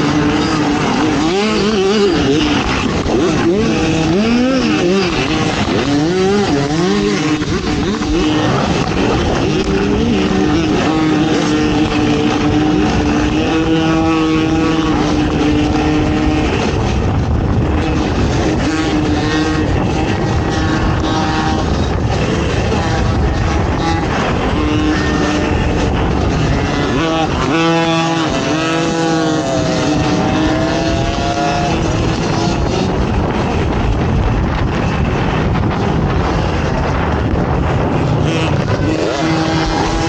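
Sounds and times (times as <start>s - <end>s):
atv engine revving: 0.0s - 40.0s.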